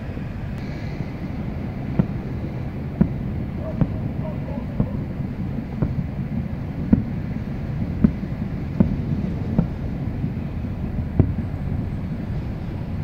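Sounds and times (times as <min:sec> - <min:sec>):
steady low rumble: 0:00.0 - 0:13.0
distant firework shells bursting: 0:01.8 - 0:11.6.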